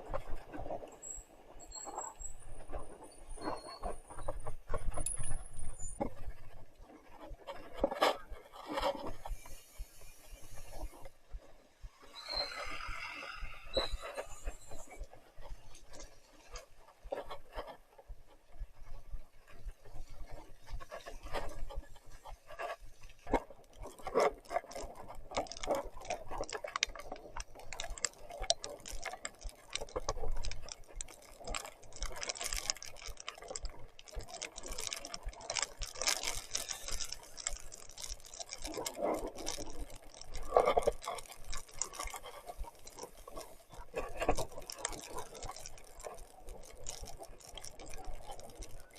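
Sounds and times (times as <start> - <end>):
bike clicks and mud splashes: 11.8 - 48.9.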